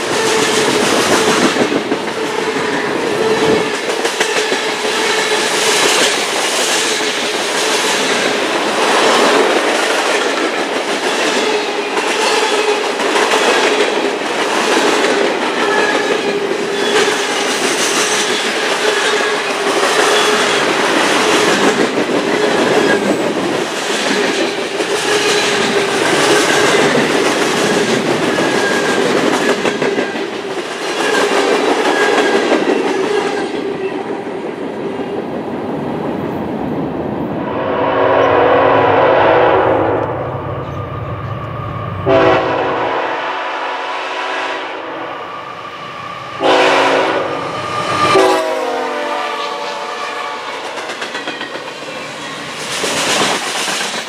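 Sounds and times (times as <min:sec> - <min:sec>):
diesel locomotive horn: 0:37.5 - 0:41.4, 0:42.0 - 0:45.3, 0:46.4 - 0:50.7.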